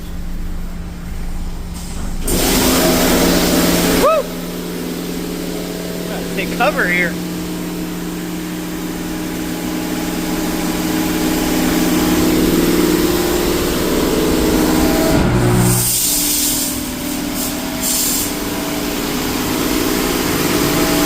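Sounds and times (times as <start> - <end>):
steady machine hum: 0.0 - 21.0
sharp hissing spray blasts: 1.8 - 4.0, 15.8 - 20.4
high-pressure water jets spraying: 2.0 - 15.0, 15.7 - 21.0.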